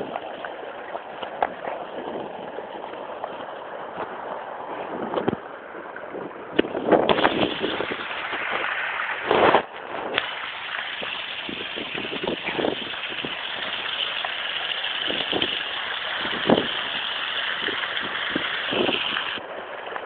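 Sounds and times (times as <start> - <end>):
rain and wind hiss: 0.0 - 20.0.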